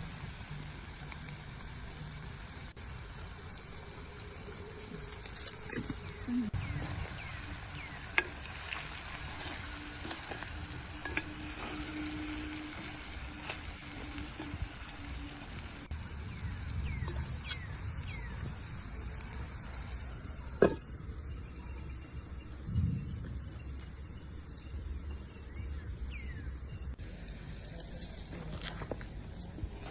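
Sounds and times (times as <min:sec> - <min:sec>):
food sizzling in a pan: 0:00.0 - 0:20.8.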